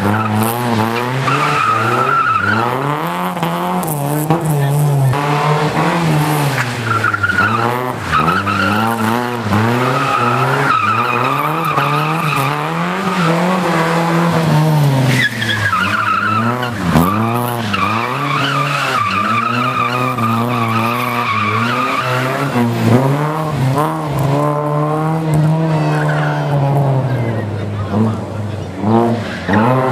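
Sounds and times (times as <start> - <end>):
car engine revving hard: 0.0 - 29.9
tyres squealing: 6.8 - 14.4, 15.1 - 23.0.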